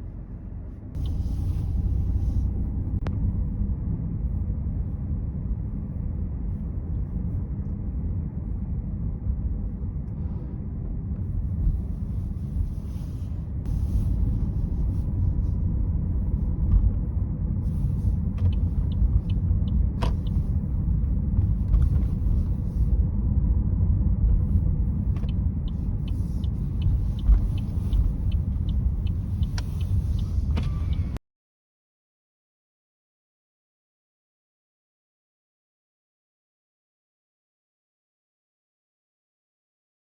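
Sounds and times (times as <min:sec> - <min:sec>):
car driving rumble: 0:00.0 - 0:31.2
light ticking: 0:25.1 - 0:31.2.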